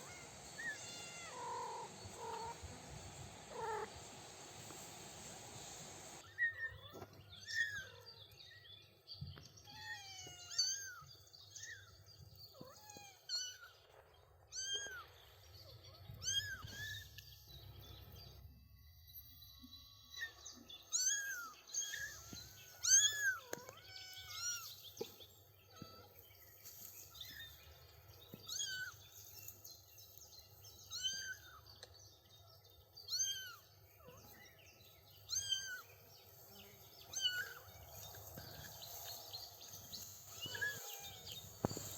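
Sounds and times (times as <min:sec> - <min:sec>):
kittens mewing: 0:00.0 - 0:02.7, 0:03.5 - 0:04.0, 0:40.3 - 0:41.9.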